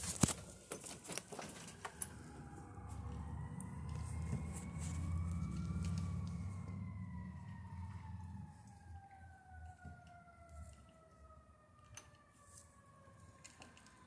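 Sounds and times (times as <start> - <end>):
siren winding down: 1.2 - 14.0
low engine rumble: 1.5 - 10.3.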